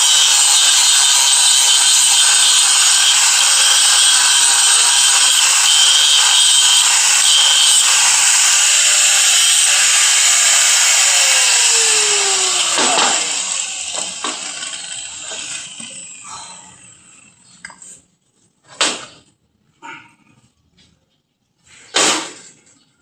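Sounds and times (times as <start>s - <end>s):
power tool whining: 0.0s - 17.5s.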